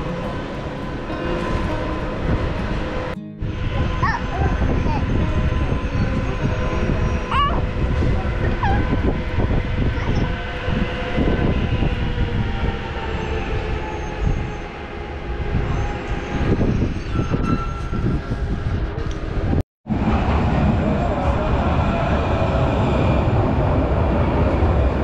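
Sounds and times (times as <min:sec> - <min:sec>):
light rail train rumble: 0:00.0 - 0:25.0.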